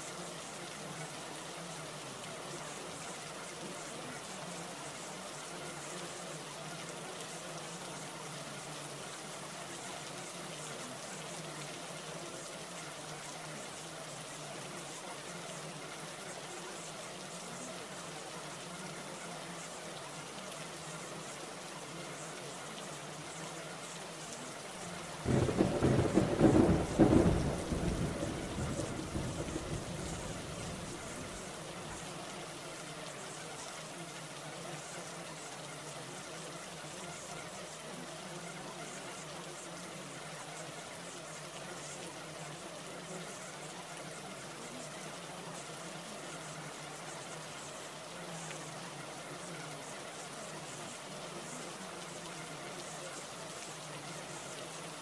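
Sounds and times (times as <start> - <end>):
rain hiss: 0.0 - 55.0
rushing water: 0.0 - 55.0
thunder rumbling: 25.1 - 31.8.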